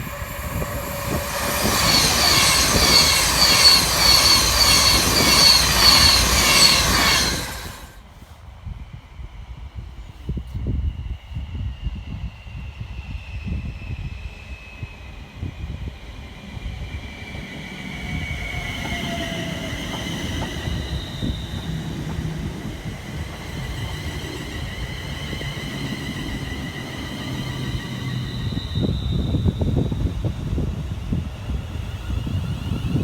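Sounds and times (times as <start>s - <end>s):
high thin whining tones: 0.0s - 8.0s
train wheels rumbling on rail: 0.0s - 33.0s.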